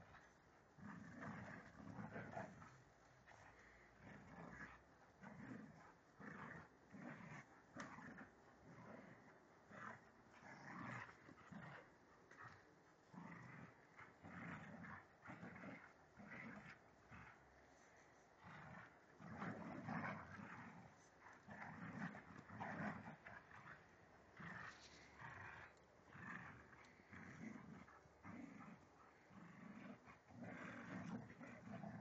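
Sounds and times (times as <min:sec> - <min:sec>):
dogs growling and snarling: 0:00.0 - 0:32.0.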